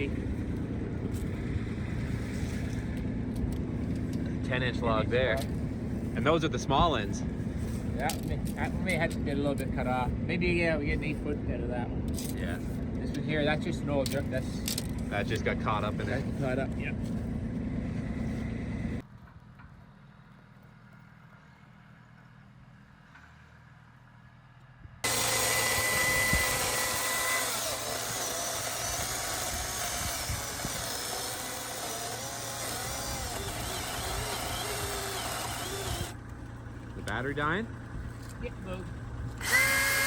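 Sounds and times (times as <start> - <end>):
chainsaw cutting log: 25.0 - 36.2, 39.4 - 40.0.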